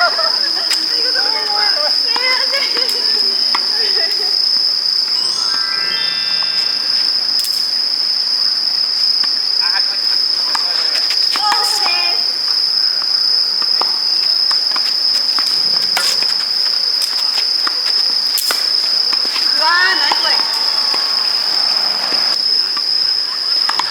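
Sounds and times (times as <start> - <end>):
high-pitched insect drone: 1.2 - 23.7
tennis ball hits: 19.7 - 22.3.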